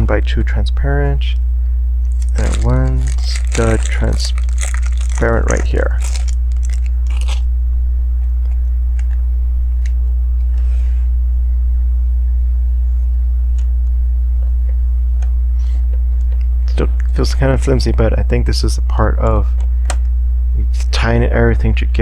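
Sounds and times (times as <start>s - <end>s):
low hum: 1.3s - 17.2s.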